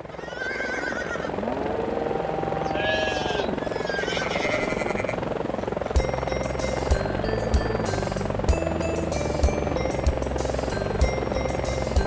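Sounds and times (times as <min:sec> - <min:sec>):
helicopter rotor chop: 0:00.0 - 0:12.0
background music with melody: 0:05.9 - 0:12.0.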